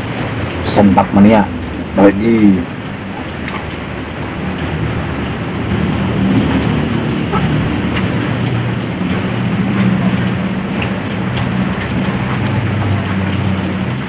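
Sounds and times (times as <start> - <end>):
rushing noise with low rumble: 0.0 - 14.0
man chewing: 4.4 - 13.5
wet mouth clicks: 7.3 - 8.2.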